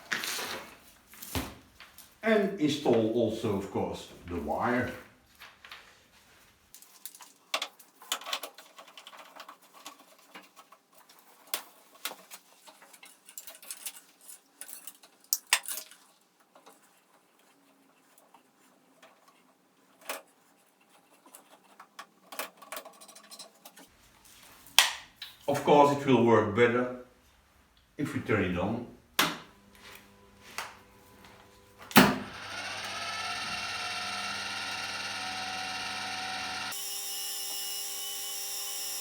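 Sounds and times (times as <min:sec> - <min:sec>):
clicks and rattles of handling parts: 0:06.8 - 0:23.9.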